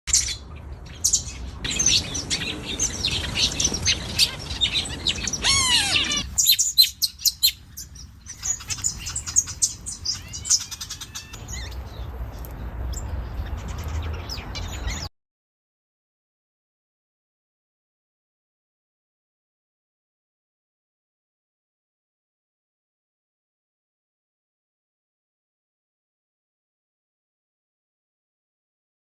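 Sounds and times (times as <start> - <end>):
birds chirping and singing: 0.1 - 15.1.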